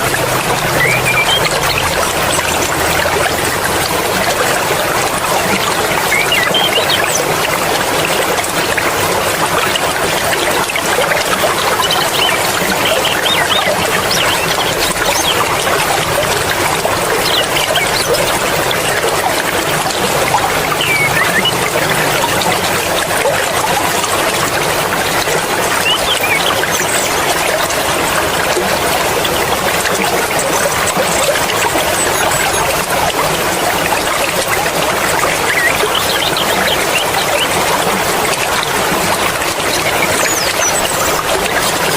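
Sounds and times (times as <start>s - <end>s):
stream water flowing over rocks: 0.0s - 41.9s.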